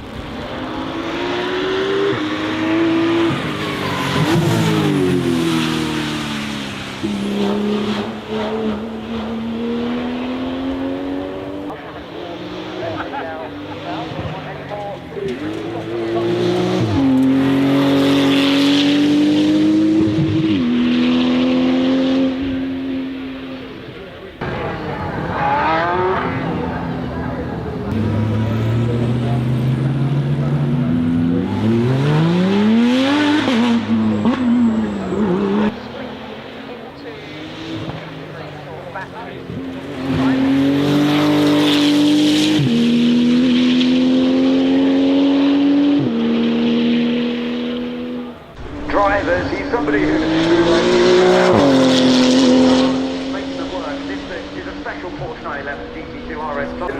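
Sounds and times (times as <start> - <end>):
car engine pulling hard: 0.0 - 56.9.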